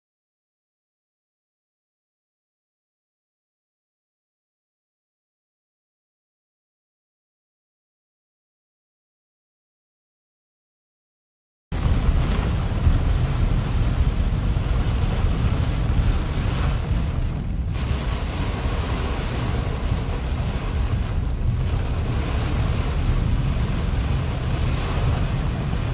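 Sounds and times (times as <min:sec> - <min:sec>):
heavy rain on car roof: 0:11.7 - 0:25.9.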